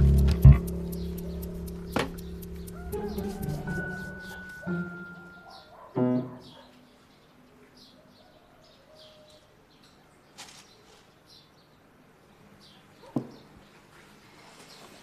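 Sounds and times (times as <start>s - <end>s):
sharp knock: 0.0s - 3.8s
small birds chirping: 0.0s - 15.0s.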